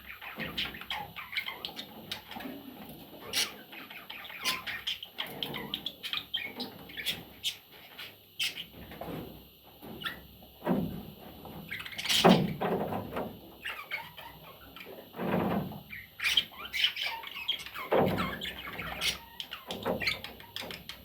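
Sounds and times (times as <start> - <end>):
budgerigar chattering and squawking: 3.2 - 7.6, 8.4 - 8.7, 13.6 - 15.0, 15.9 - 21.0.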